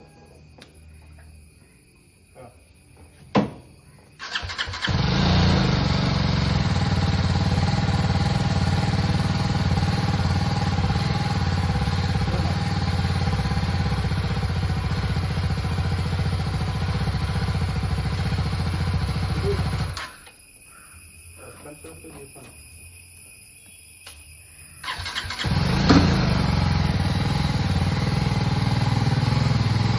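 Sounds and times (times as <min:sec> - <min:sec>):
motorcycle engine running: 0:04.3 - 0:20.0, 0:24.8 - 0:29.9.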